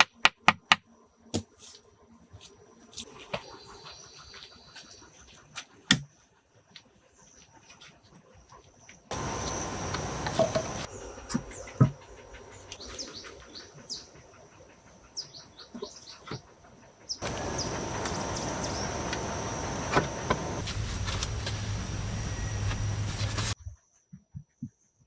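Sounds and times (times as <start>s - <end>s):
small birds chirping: 3.0s - 5.5s, 6.8s - 23.6s
thin high whine: 17.2s - 23.6s.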